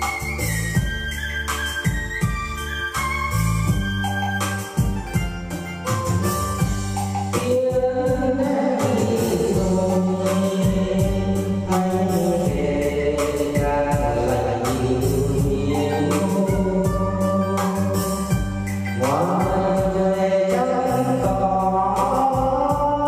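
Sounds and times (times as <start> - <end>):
repeating bass line: 6.2 - 20.4
person singing: 7.2 - 23.0.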